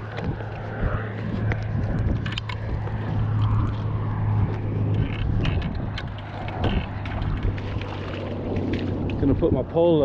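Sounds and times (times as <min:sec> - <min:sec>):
low engine hum: 0:00.0 - 0:10.0
sharp clicks and knocks: 0:01.4 - 0:03.8.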